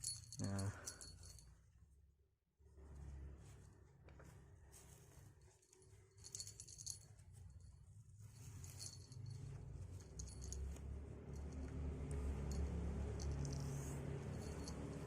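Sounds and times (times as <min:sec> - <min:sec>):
light clinking and rustling: 0:00.0 - 0:01.6, 0:05.5 - 0:15.0.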